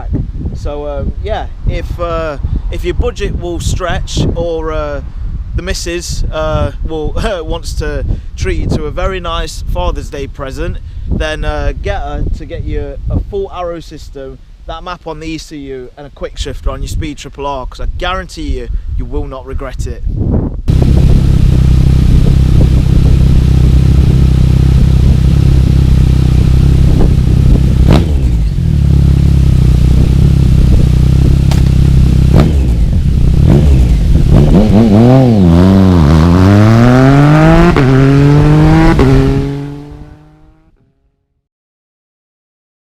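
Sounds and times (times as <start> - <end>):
exhaust pops: 20.7 - 40.6
motorcycle engine revving: 20.7 - 40.8.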